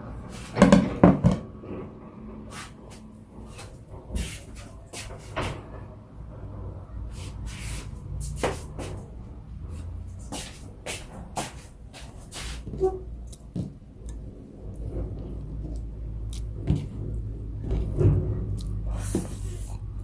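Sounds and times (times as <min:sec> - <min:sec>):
kitchen utensils knocking: 0:00.6 - 0:01.6.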